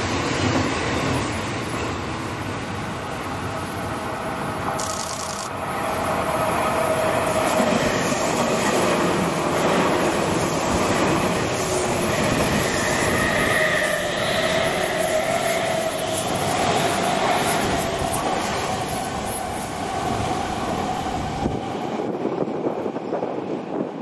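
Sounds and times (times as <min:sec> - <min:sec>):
train wheels rumbling on rail: 0:00.0 - 0:24.0
train motor whine: 0:03.6 - 0:08.2, 0:11.2 - 0:21.6
wheel squeal: 0:12.0 - 0:19.8.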